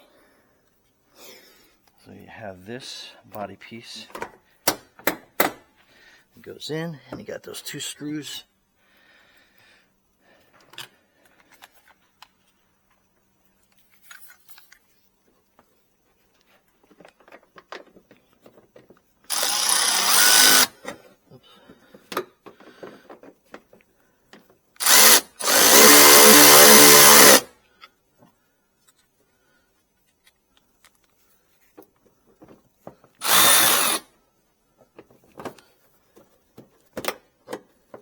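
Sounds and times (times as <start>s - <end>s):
small clicks and handling knocks: 16.3s - 19.1s, 21.7s - 24.6s, 30.0s - 33.2s, 34.8s - 38.0s
cordless drill driving screws: 19.3s - 20.8s, 24.8s - 27.5s, 33.2s - 34.1s.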